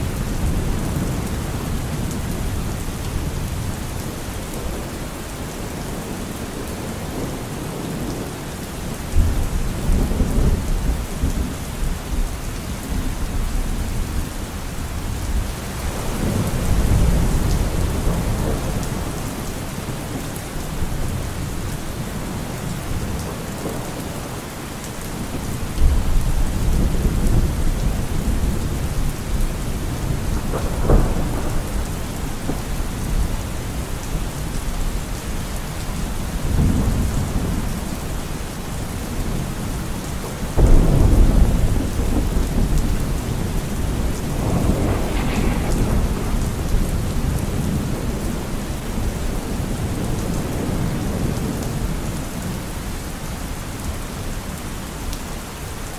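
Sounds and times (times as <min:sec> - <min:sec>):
thunder rumbling: 0:00.0 - 0:05.0, 0:25.2 - 0:35.4, 0:38.8 - 0:52.2
steady rain: 0:00.0 - 0:55.9.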